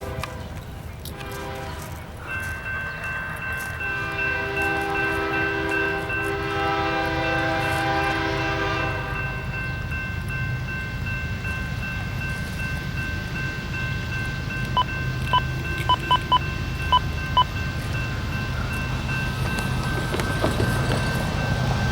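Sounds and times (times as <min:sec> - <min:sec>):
locomotive horn blowing: 0:00.0 - 0:02.0, 0:03.9 - 0:09.5
train rumbling: 0:00.0 - 0:21.9
high-pitched ringing tone: 0:09.2 - 0:21.6.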